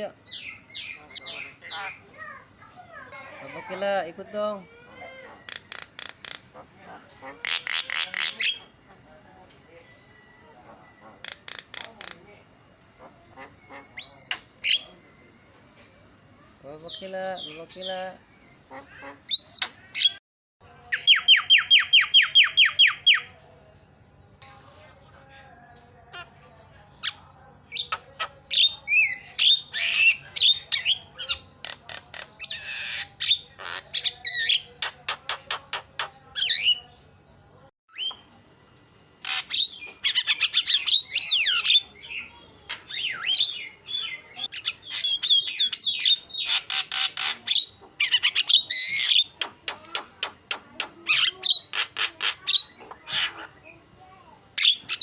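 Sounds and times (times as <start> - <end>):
myna chattering: 0.0 - 9.1, 10.6 - 15.0, 18.7 - 20.2, 39.2 - 53.9.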